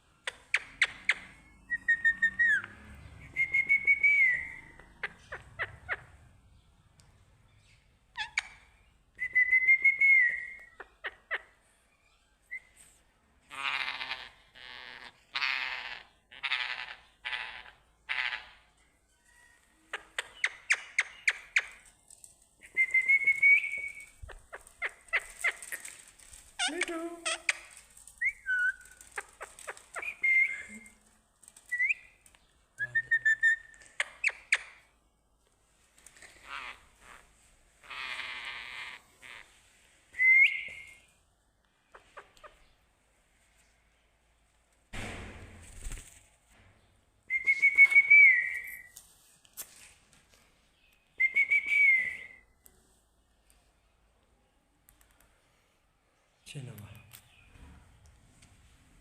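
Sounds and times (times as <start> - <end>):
parrot clicks and chirps: 0.2 - 2.8, 19.9 - 21.9, 33.1 - 34.9
parrot calls: 0.2 - 6.3, 13.5 - 18.7, 22.6 - 31.0, 36.3 - 39.6
parrot whistling and chirping: 0.5 - 6.1, 8.2 - 10.8, 22.6 - 25.9, 27.3 - 30.9, 31.7 - 32.2, 32.8 - 34.8, 40.1 - 41.1, 47.3 - 49.0, 51.2 - 52.5
parrot whistling: 1.6 - 2.7, 3.3 - 4.8, 30.0 - 30.9, 40.2 - 41.1, 47.3 - 48.9.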